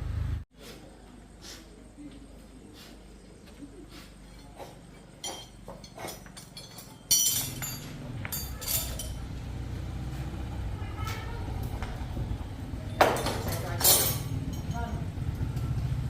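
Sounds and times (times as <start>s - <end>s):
light metallic clinks: 4.2s - 9.6s, 12.8s - 15.8s
small engine starting and humming: 9.1s - 13.0s.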